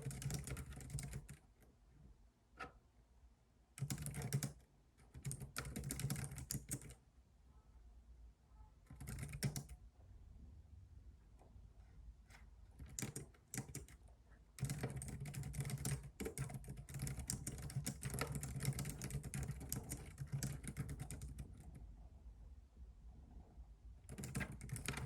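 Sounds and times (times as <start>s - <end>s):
typing on computer keyboard: 0.0s - 1.4s, 3.8s - 7.0s, 8.9s - 9.8s, 12.8s - 14.0s, 14.6s - 21.8s, 24.0s - 25.0s.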